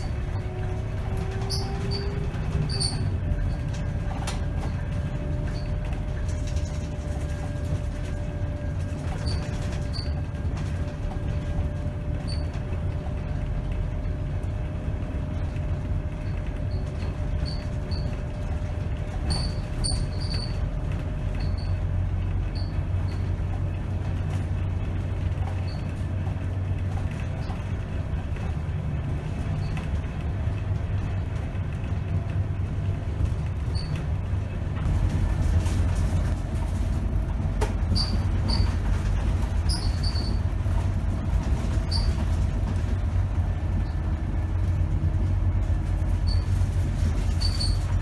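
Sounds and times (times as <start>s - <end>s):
high squeaks and rattles: 0.0s - 12.6s, 16.2s - 21.8s, 33.2s - 34.2s, 37.7s - 43.1s, 46.0s - 48.0s
bus engine low rumble: 0.0s - 48.0s.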